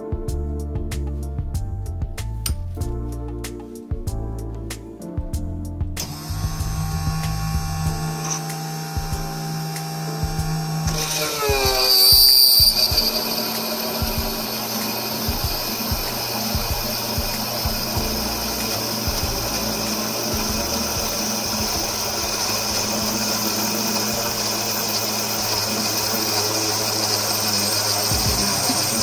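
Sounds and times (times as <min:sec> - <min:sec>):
drill press drilling into metal: 0:06.0 - 0:29.0.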